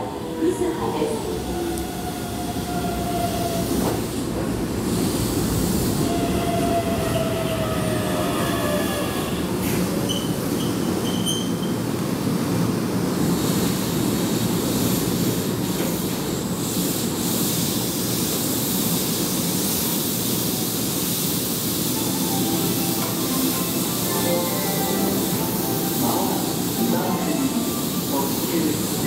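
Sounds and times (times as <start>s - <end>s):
train hiss: 0.0s - 11.3s, 12.2s - 29.0s
train rumble: 0.0s - 29.0s
high brake squeals: 10.0s - 11.8s.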